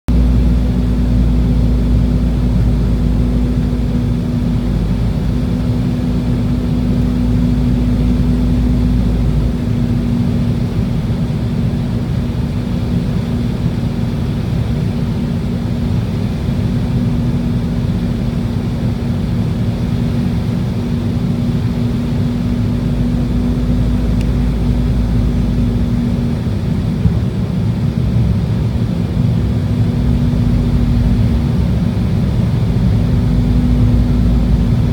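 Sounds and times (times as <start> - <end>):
airliner engines droning: 0.1 - 34.9
steady hum: 0.1 - 34.9.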